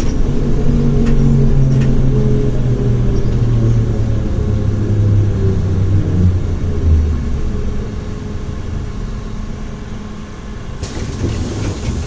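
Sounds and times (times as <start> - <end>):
road rumble: 0.0 - 12.0
trolleybus motor hum: 8.8 - 12.0.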